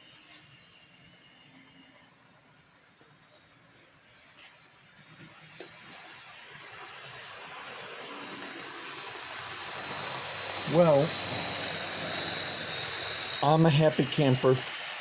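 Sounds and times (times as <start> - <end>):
model train whirring on track: 0.0 - 15.0
faint clicks of model train: 3.9 - 6.2, 6.8 - 15.0.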